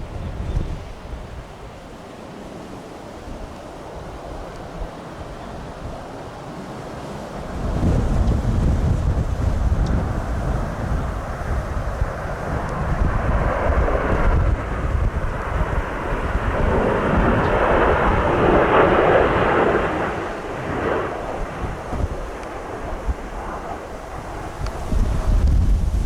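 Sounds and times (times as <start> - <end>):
gusty wind on microphone: 0.0 - 2.0, 2.6 - 26.0
jet airliner engine roar: 0.0 - 26.0.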